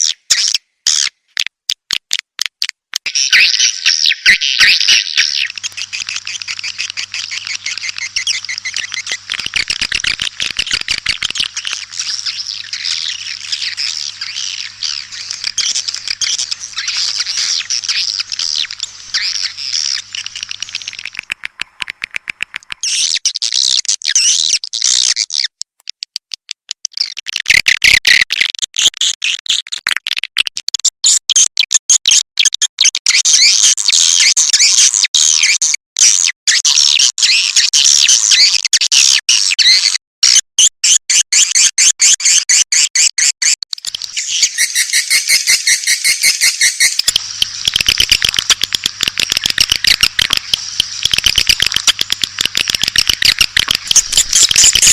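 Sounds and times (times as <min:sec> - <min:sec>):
faint steady hum: 0:05.4 - 0:22.9, 0:43.8 - 0:54.9
swiftlets twittering: 0:05.4 - 0:22.9, 0:43.8 - 0:54.9.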